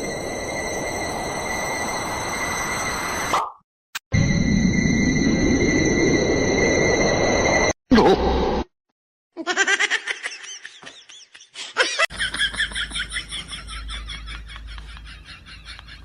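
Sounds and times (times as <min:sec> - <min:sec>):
high-pitched laughter: 0:09.4 - 0:16.0.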